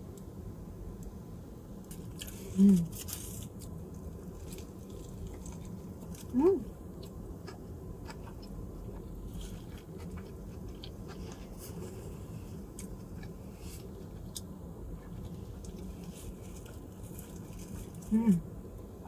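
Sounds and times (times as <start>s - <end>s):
steady low hum: 0.0s - 19.0s
person chewing food: 4.3s - 6.3s, 7.0s - 18.0s.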